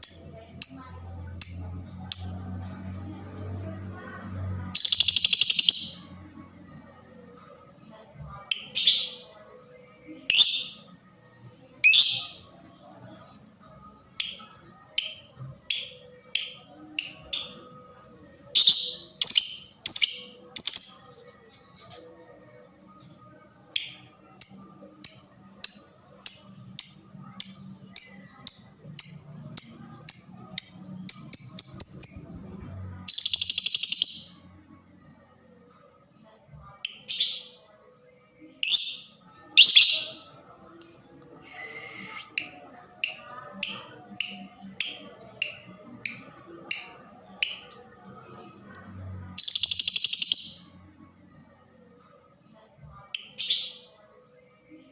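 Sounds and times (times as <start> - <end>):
lovebird chirping: 4.8 - 6.2, 23.8 - 32.5, 33.1 - 34.4, 38.5 - 40.5.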